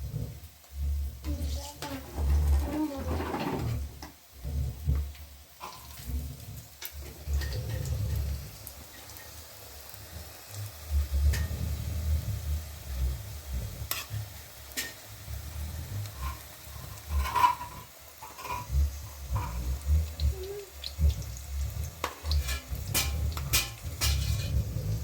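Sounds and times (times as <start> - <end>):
food frying in a pan: 0.0 - 25.0
low uneven rumble: 9.8 - 25.0.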